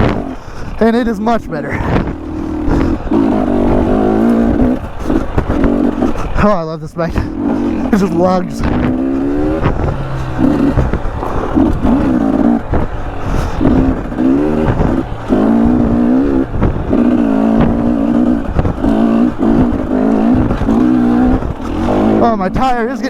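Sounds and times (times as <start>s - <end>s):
dirt bike engine revving: 0.0s - 23.0s
bike knocks and clatter: 2.8s - 6.5s.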